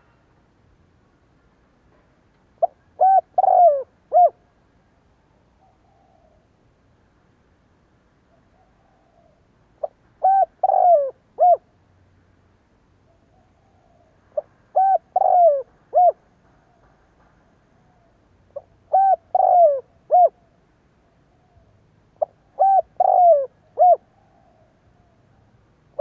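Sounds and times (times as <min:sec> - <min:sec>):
dove cooing: 0:02.6 - 0:04.4, 0:05.6 - 0:06.5, 0:08.4 - 0:11.7, 0:13.1 - 0:16.9, 0:17.8 - 0:20.5, 0:21.4 - 0:25.3.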